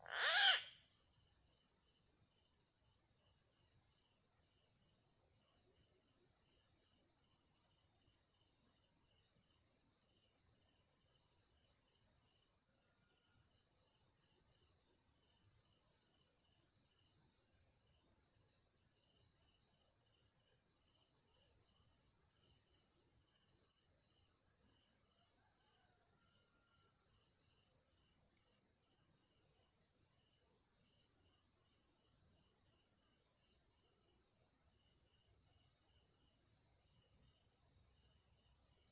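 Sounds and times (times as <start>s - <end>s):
insects trilling: 0.0s - 1.2s.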